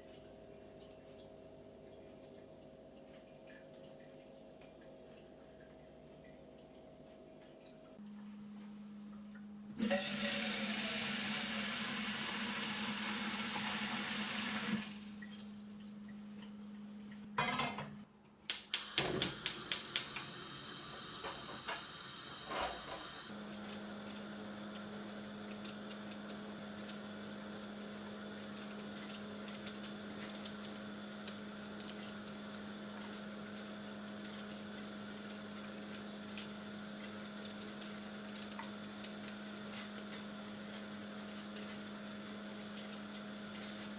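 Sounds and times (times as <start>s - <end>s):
water running from a tap: 9.8s - 16.8s, 18.6s - 43.9s.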